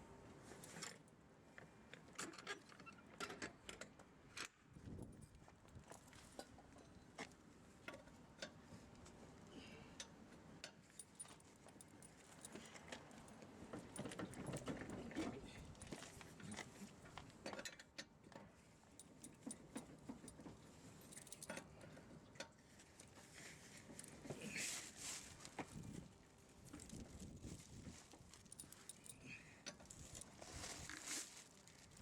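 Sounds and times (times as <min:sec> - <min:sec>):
soft handling noises: 0:10.7 - 0:17.6, 0:18.2 - 0:32.0
metallic clinks and clicks: 0:11.0 - 0:14.8, 0:19.0 - 0:20.4, 0:21.0 - 0:21.7, 0:28.4 - 0:30.3.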